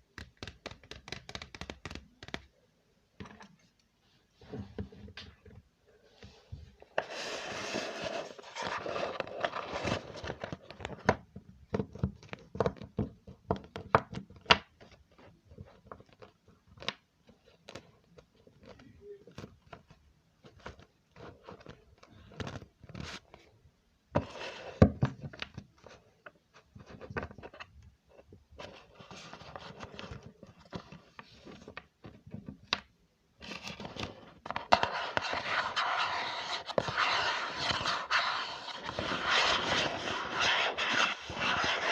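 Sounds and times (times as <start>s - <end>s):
rustling or scratching: 33.5s - 41.9s.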